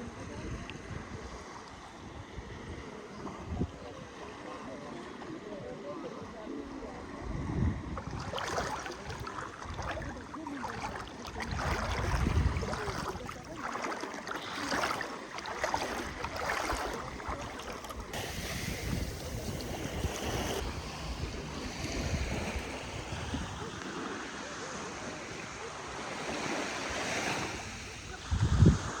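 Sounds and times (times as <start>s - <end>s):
small sea waves washing in: 0.0s - 29.0s
wind buffeting microphone: 6.9s - 13.6s, 15.6s - 24.1s, 27.6s - 29.0s.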